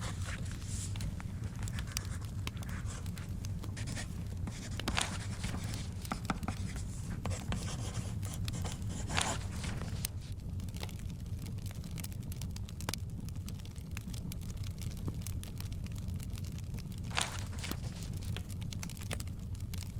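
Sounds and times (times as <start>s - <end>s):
book pages rustling: 0.0s - 10.3s, 17.1s - 19.2s
wood fire crackling: 0.0s - 19.9s.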